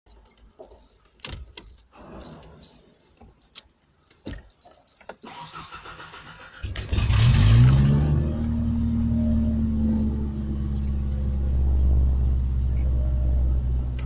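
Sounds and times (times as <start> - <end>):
keys jangling in ignition: 0.1 - 7.0, 9.8 - 11.2
engine cranking rumble: 5.2 - 14.0.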